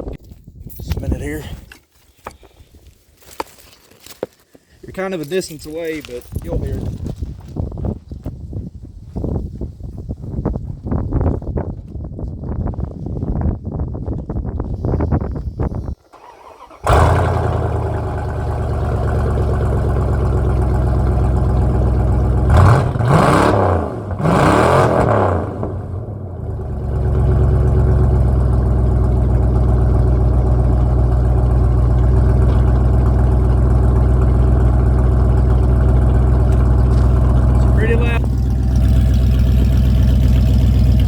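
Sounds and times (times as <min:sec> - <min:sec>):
truck engine starting: 0:16.0 - 0:41.0
engine revving: 0:16.2 - 0:41.0
rumbling engine idle: 0:16.8 - 0:24.4, 0:25.1 - 0:41.0.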